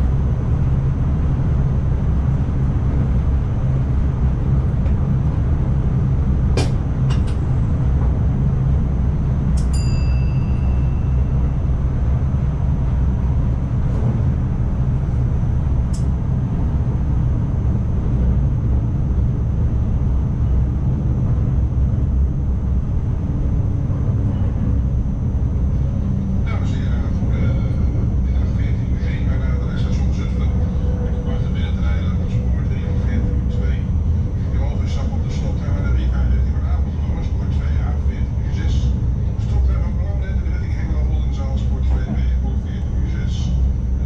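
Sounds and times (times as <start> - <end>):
train running low rumble: 0.0 - 44.0
brief ringing tone: 9.7 - 11.6.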